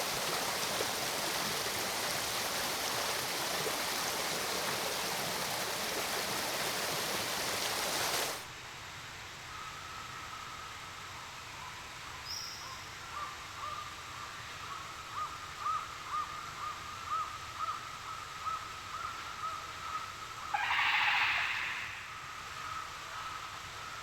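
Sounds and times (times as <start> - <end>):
background hiss: 0.0 - 24.0
harsh rasping bird call: 20.5 - 22.2
bird calling short notes: 20.6 - 22.2.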